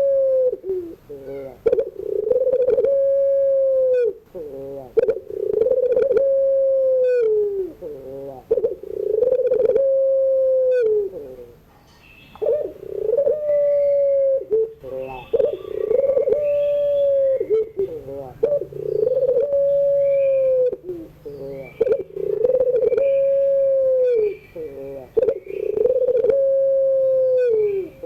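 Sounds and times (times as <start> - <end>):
dove cooing: 0.0 - 11.7, 12.3 - 28.0
faint bird chirps: 10.7 - 12.8, 13.4 - 26.2, 27.2 - 28.0.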